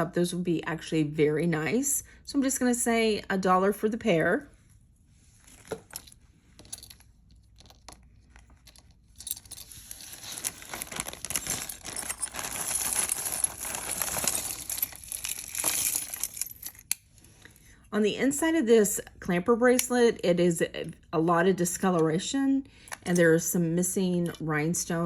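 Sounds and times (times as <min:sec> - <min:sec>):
jewelry clinking: 0:05.5 - 0:17.0
plastic packaging crinkling: 0:07.5 - 0:16.9.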